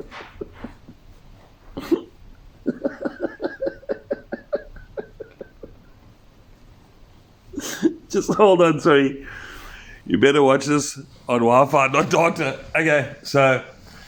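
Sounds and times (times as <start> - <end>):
man laughing: 1.8 - 6.0, 7.6 - 8.6
sharp breath: 9.2 - 10.0.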